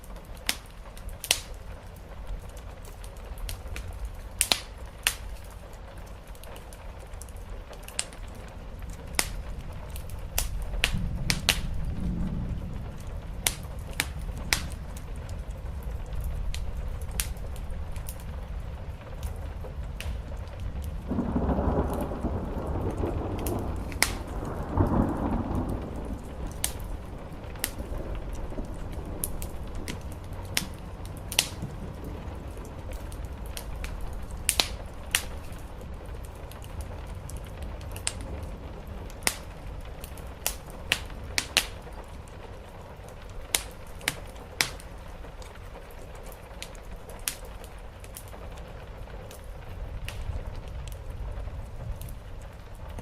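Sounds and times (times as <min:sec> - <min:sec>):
rain on a roof: 0:00.0 - 0:53.0
thunder rumbling: 0:00.0 - 0:53.0
wood fire crackling: 0:00.0 - 0:53.0.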